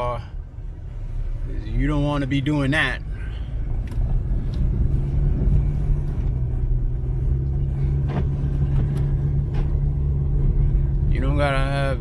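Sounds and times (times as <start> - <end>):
car engine and road noise: 0.0 - 12.0
constant low hum: 0.0 - 12.0.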